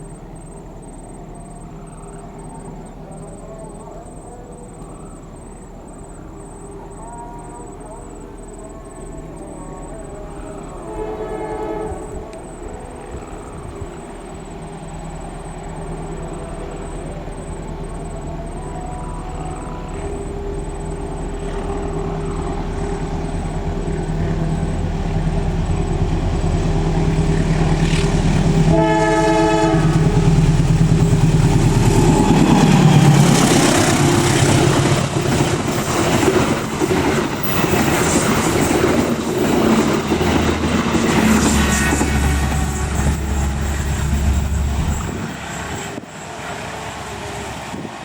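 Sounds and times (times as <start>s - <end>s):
locomotive engine rumble: 0.0s - 48.0s
train horn blast: 6.9s - 14.0s, 16.2s - 20.8s, 27.7s - 35.7s, 40.5s - 46.0s
wheels clattering on rails: 29.6s - 46.3s.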